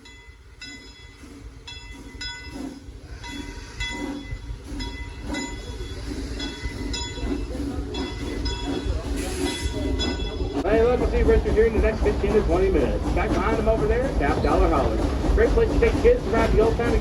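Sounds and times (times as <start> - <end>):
locomotive bell ringing: 0.0 - 11.2
steam locomotive rumbling: 0.0 - 17.0.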